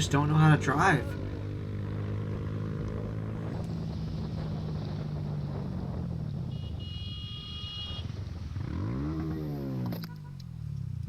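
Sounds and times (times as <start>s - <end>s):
motorcycle engine revving: 0.0s - 11.0s
wind noise on microphone: 3.1s - 8.8s.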